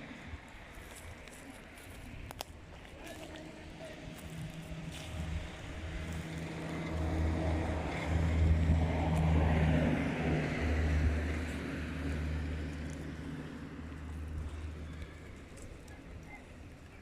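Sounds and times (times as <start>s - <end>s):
vehicle engine passing by: 3.3s - 15.9s.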